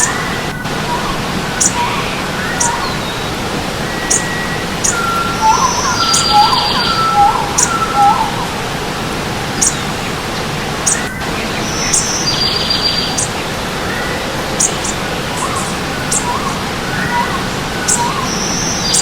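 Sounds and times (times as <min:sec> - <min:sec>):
bird buzzy trill: 0:00.0 - 0:08.8
birds chirping: 0:00.0 - 0:19.0
low whistled bird notes: 0:00.0 - 0:19.0
stream water rushing: 0:00.0 - 0:19.0.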